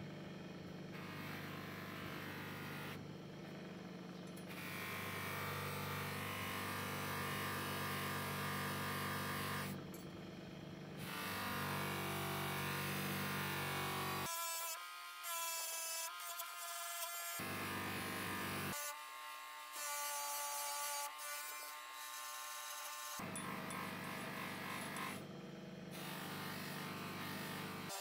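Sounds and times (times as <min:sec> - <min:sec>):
bench grinder motor running: 0:15.5 - 0:28.0.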